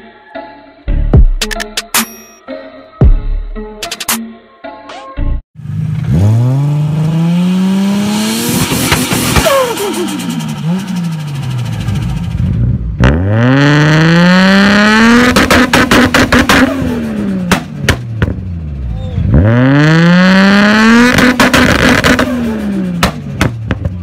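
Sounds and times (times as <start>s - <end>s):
car engine revving: 5.6s - 24.0s.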